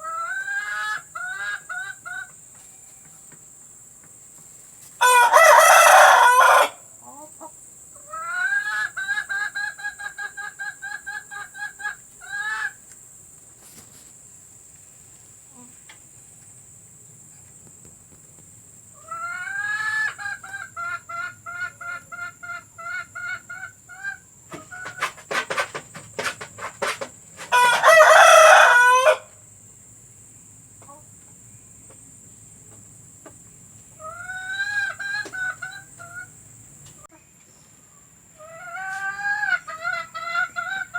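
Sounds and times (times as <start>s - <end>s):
hen cackling: 0.0s - 2.4s, 5.0s - 12.8s, 19.0s - 29.3s, 34.0s - 36.4s, 38.4s - 40.9s
loud chicken calls: 0.0s - 2.4s, 5.0s - 12.8s, 19.0s - 29.4s, 33.9s - 36.4s, 38.3s - 40.9s.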